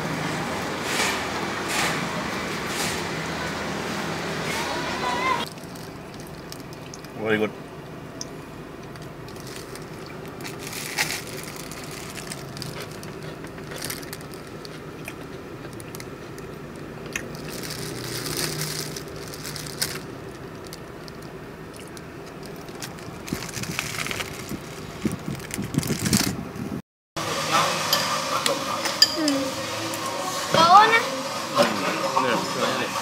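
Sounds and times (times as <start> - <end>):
chewing crunchy bread: 5.4 - 7.2, 8.8 - 26.4.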